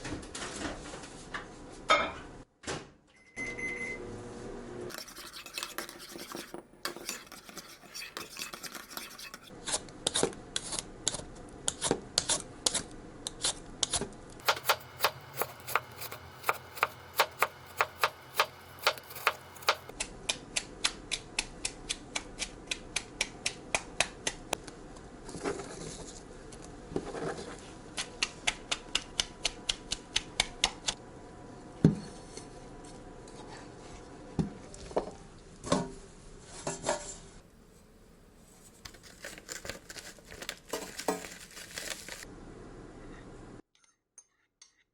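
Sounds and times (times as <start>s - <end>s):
utensils striking and scraping a pan: 4.9s - 9.5s, 14.4s - 19.9s.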